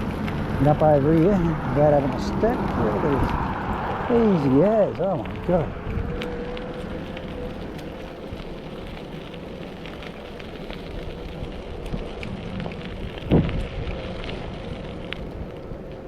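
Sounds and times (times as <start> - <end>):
tyres crackling on rough surface: 0.0 - 16.0
electric motor whine: 5.3 - 13.5.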